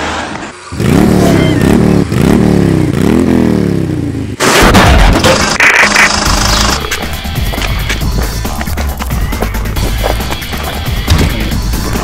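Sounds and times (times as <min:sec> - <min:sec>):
car engine revving: 0:00.6 - 0:08.7.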